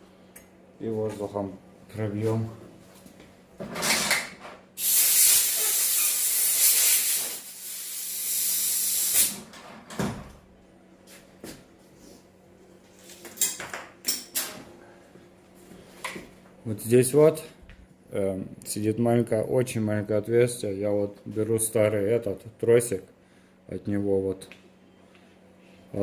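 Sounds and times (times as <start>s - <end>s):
compressed air hissing: 4.8s - 9.4s.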